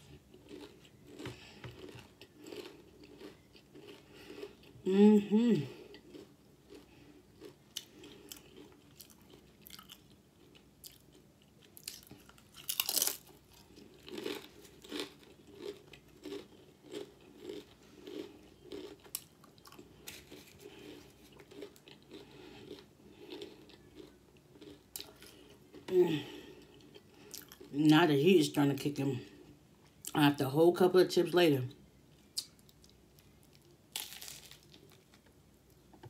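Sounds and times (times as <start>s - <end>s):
chewing and crunching chips: 0.0s - 4.9s, 5.6s - 30.2s, 32.1s - 35.8s.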